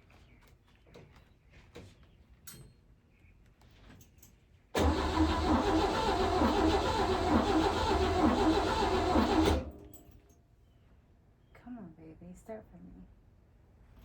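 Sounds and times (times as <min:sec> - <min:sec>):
car engine cranking without starting: 0:04.8 - 0:10.0.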